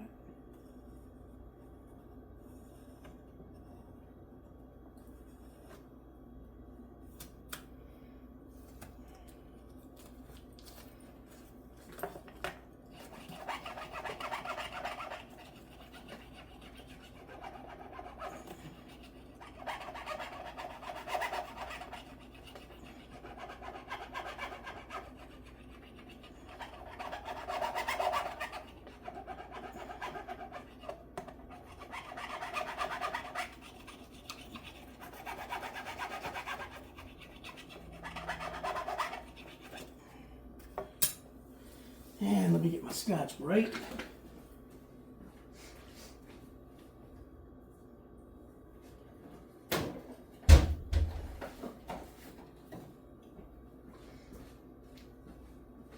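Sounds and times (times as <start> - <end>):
sanding wood by hand: 13.2 - 30.6.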